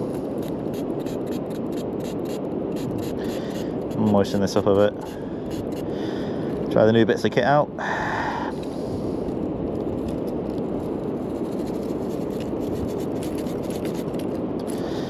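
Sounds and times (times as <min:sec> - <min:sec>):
wind buffeting microphone: 0:00.0 - 0:15.0
coin being scrubbed: 0:00.7 - 0:04.1, 0:05.0 - 0:05.8, 0:11.4 - 0:14.3.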